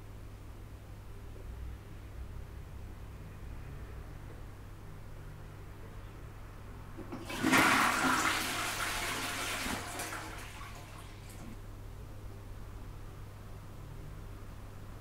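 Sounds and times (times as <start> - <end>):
toilet flushing: 7.0 - 11.6.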